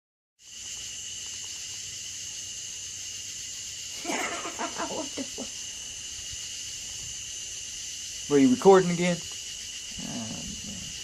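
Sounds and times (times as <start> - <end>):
high-pitched insect chorus: 0.4 - 11.0
voice-like calls: 3.9 - 5.6, 9.9 - 11.0.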